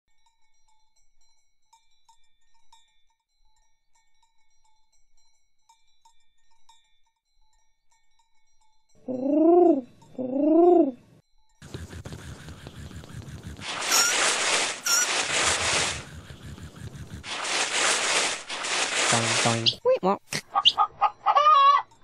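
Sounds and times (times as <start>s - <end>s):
faint tinkling chimes: 0.1s - 9.0s
animal calls rising and falling: 9.1s - 11.0s, 11.7s - 19.9s, 20.5s - 21.9s
scratchy noise: 11.6s - 19.8s.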